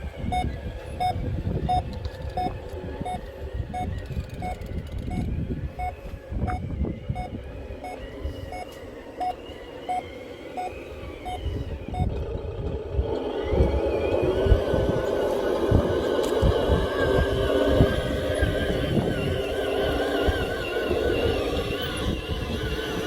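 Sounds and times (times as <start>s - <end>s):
low rumbling noise: 0.0s - 23.0s
reversing beeper: 0.2s - 12.1s.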